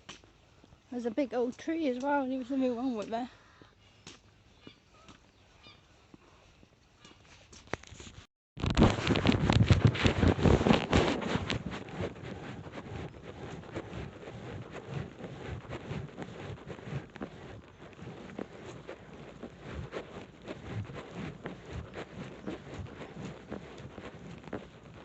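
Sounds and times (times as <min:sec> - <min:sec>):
tapping and rustling on camera: 0:07.7 - 0:14.2.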